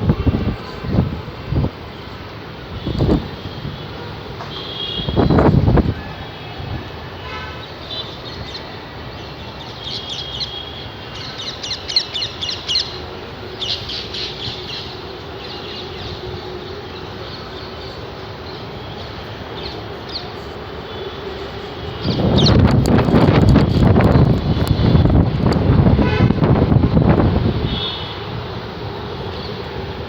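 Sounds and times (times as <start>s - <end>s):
birds chirping: 7.5s - 25.1s.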